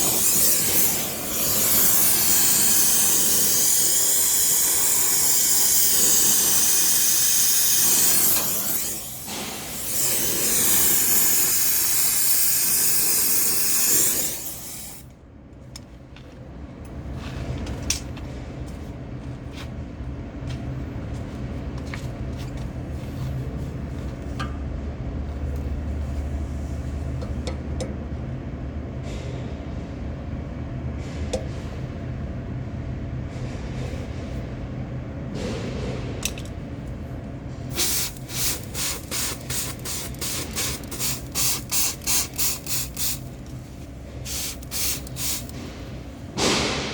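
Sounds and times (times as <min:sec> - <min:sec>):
gas torch hissing: 0:00.0 - 0:15.1, 0:37.7 - 0:43.6, 0:44.2 - 0:46.9.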